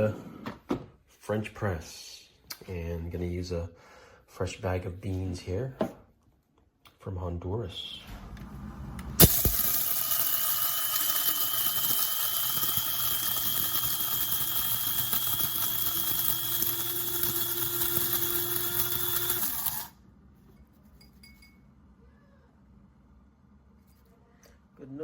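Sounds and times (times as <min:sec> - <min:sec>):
coffee grinder motor whine: 0:09.2 - 0:20.0.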